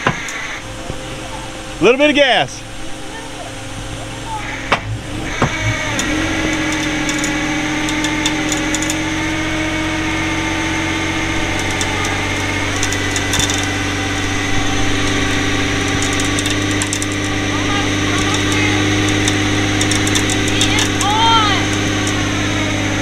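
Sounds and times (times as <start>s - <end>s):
vehicle engine revving under load: 0.0s - 23.0s.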